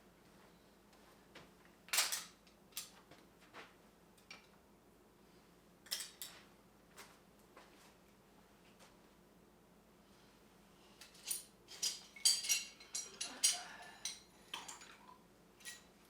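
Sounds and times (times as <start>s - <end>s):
metal hand tools clinking: 11.2s - 15.0s, 15.6s - 15.9s.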